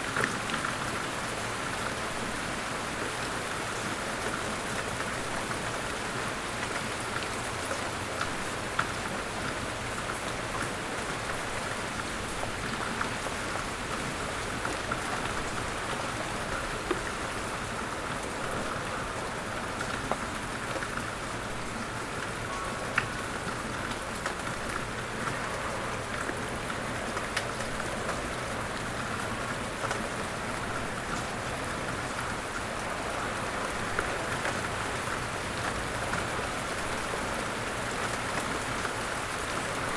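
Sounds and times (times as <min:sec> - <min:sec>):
steady rain falling: 0:00.0 - 0:39.9
light rain ticks: 0:03.2 - 0:39.9.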